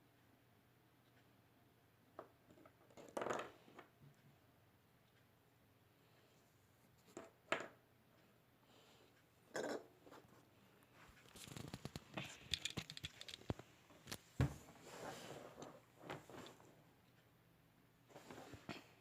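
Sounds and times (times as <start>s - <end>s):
handling clicks and taps: 11.4s - 14.2s.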